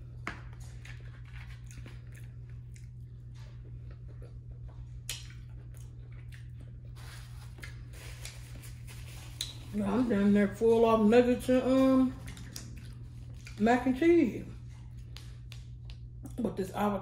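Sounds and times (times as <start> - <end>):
low hum: 0.0 - 17.0
chewing with wet mouth smacks: 0.1 - 9.8, 12.1 - 13.8, 14.6 - 16.4.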